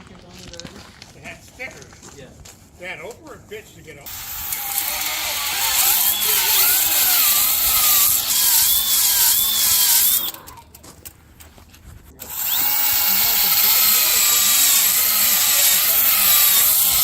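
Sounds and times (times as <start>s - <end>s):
power tool hissing whir: 4.1s - 10.4s, 12.2s - 17.0s.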